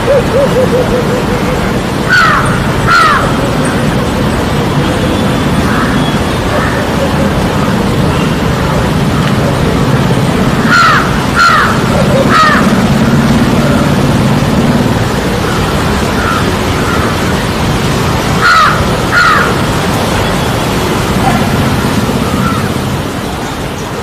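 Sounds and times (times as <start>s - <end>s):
bird harsh calls: 0.0s - 8.5s, 10.5s - 12.9s, 18.3s - 24.0s.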